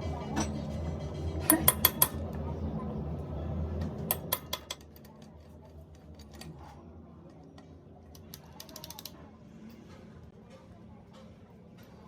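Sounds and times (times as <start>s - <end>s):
low machine hum: 0.0s - 8.4s.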